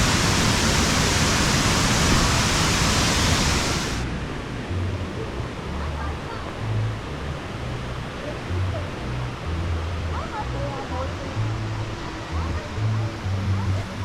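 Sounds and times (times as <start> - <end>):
waterfall rushing: 0.0 - 4.5, 10.1 - 14.0.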